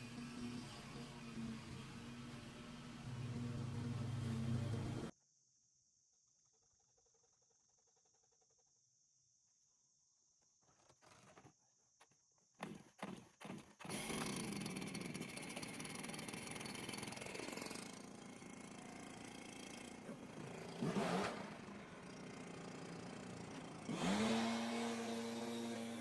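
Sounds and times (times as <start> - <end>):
small petrol engine running: 0.0 - 5.1, 12.6 - 26.0.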